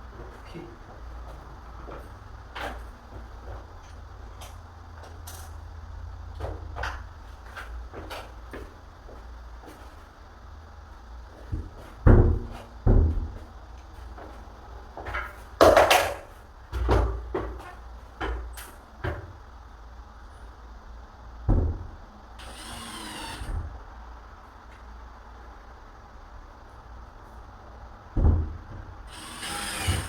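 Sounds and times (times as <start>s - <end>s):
knocks and thumps on wooden door: 11.6s - 13.4s, 21.5s - 21.9s, 28.2s - 28.9s
power drill whirring: 22.4s - 23.7s, 29.1s - 30.0s.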